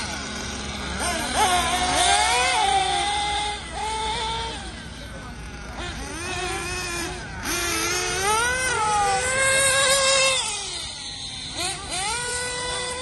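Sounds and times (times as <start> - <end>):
small nitro engines revving: 0.0 - 13.0.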